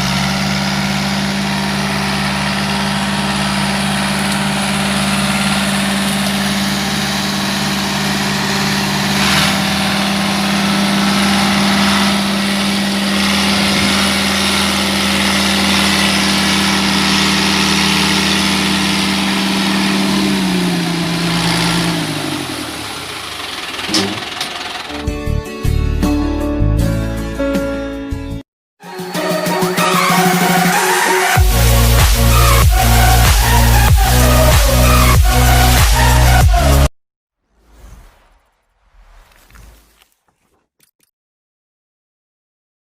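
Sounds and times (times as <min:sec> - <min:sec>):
tractor diesel engine running: 0:00.0 - 0:25.4.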